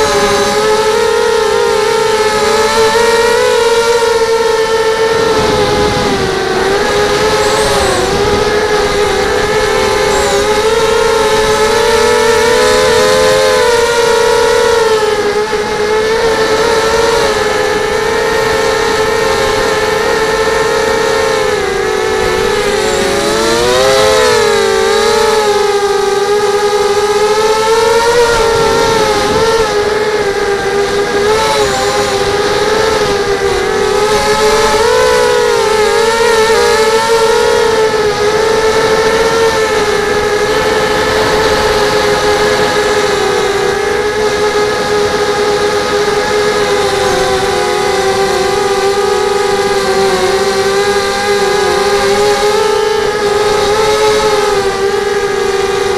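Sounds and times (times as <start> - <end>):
drone motors whining: 0.0 - 55.9.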